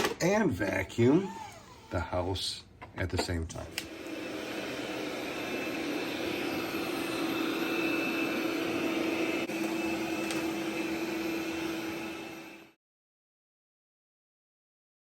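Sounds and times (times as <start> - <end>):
robot vacuum suction fan whirring: 1.0 - 2.3, 3.6 - 12.8.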